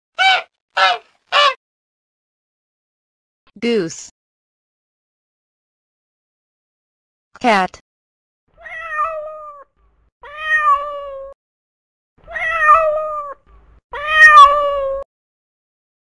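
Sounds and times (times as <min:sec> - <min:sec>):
cat meowing: 0:08.6 - 0:11.4, 0:12.2 - 0:15.1.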